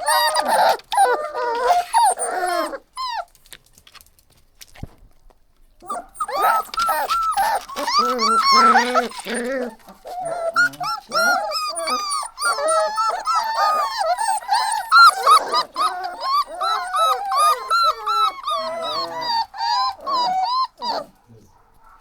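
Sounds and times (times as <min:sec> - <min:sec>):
puppies whimpering and yelping: 0:00.0 - 0:03.4, 0:05.8 - 0:21.2.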